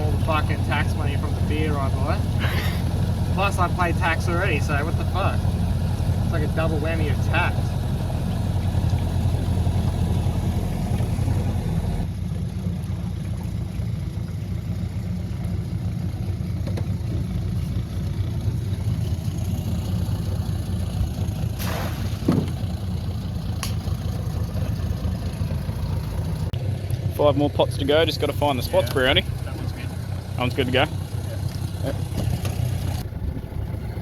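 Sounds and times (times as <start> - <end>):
outboard motor running: 0.0 - 34.0
thump: 21.6 - 22.6.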